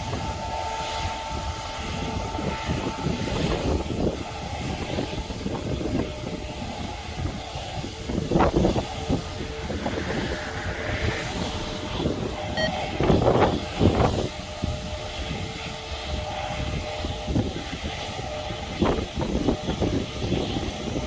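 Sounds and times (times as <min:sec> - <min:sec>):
distant jet engines rumbling: 0:05.6 - 0:15.1.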